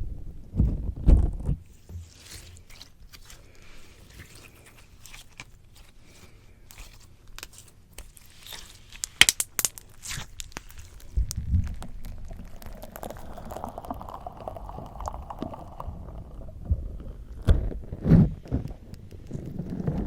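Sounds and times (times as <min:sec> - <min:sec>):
slime squishing and crackling: 0:01.6 - 0:20.0
sharp snaps: 0:09.0 - 0:12.1.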